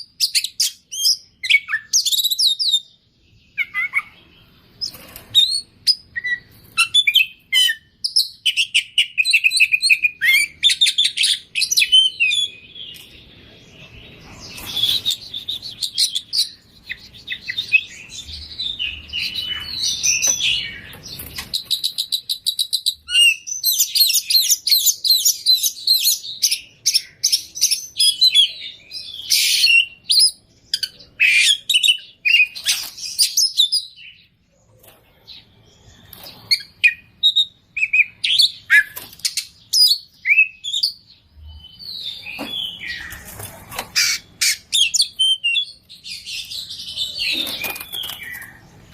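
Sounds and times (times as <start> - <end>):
bird singing chirps and trills: 0.0 - 48.9.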